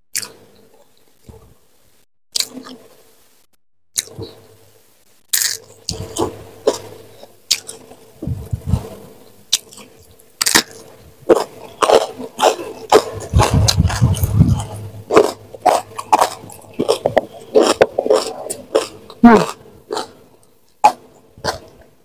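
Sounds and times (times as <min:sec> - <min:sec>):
crisp crunchy chewing: 0:05.3 - 0:21.9
low rumble: 0:08.2 - 0:09.1, 0:13.0 - 0:15.6.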